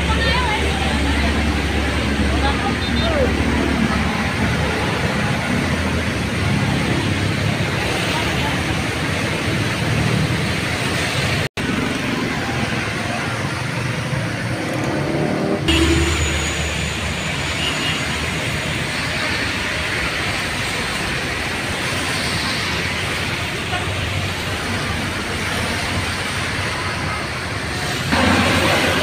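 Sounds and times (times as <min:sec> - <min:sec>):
bus engines: 0:00.0 - 0:29.0
road traffic: 0:00.0 - 0:29.0
heavy rain hissing: 0:15.8 - 0:29.0.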